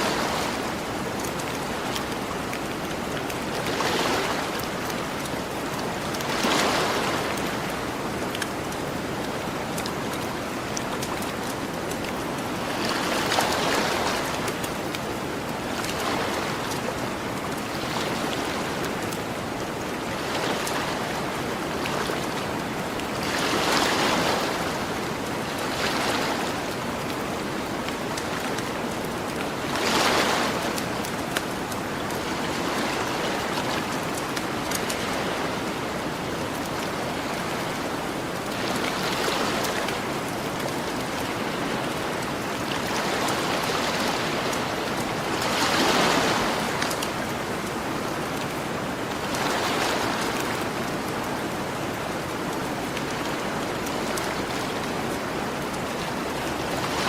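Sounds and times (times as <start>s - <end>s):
ocean waves washing onto beach: 0.0s - 57.0s
campfire crackles: 0.7s - 3.8s.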